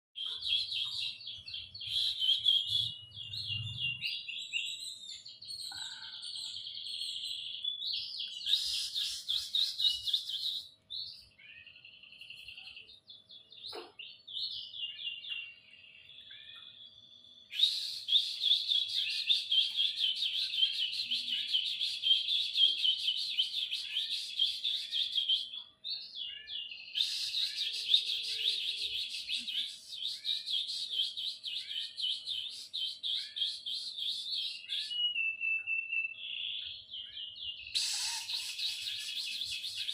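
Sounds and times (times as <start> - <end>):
canary trilling song: 0.2 - 39.9
canary short calls: 37.8 - 39.2.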